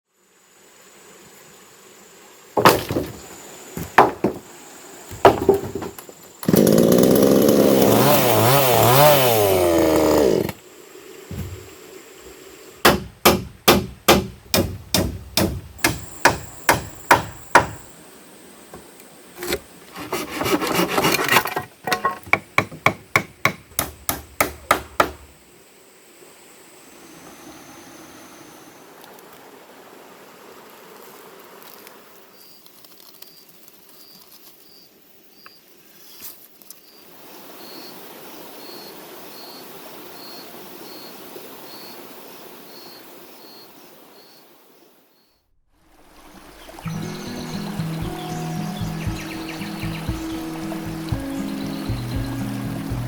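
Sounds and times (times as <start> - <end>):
knocks on wood: 2.6 - 4.5, 5.1 - 6.1, 11.3 - 11.7, 12.8 - 17.9, 21.6 - 25.3
rapid sharp strikes on wood: 12.8 - 17.9, 21.9 - 25.3.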